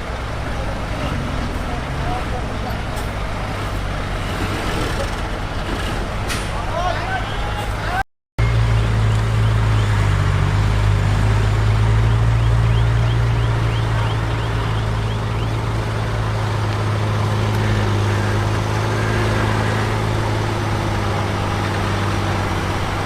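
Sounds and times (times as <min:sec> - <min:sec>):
heavy diesel engine running: 0:00.0 - 0:23.0.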